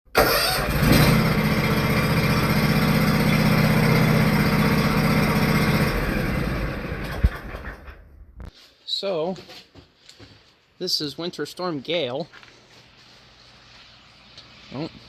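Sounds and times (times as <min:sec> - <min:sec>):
engine humming: 0:00.2 - 0:08.5.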